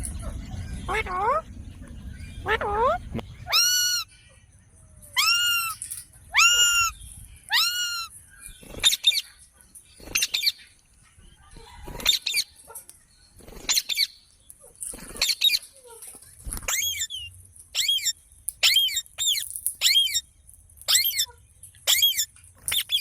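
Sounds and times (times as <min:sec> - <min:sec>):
parrot calling: 0:00.5 - 0:01.5, 0:02.1 - 0:04.4, 0:05.2 - 0:08.2, 0:16.7 - 0:20.2, 0:20.9 - 0:23.0
parrot screeching: 0:02.4 - 0:04.1, 0:05.2 - 0:08.2, 0:16.6 - 0:20.2, 0:20.9 - 0:23.0.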